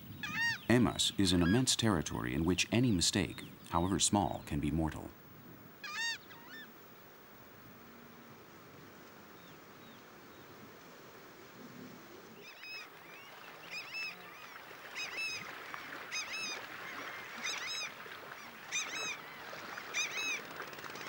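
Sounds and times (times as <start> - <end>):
water birds calling: 0.0 - 7.2, 11.6 - 21.0
soft steady hiss: 0.0 - 21.0.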